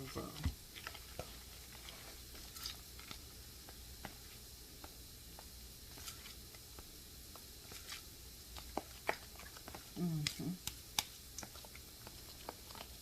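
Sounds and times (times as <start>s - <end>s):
soft squishing of stirred mixture: 0.0s - 13.0s.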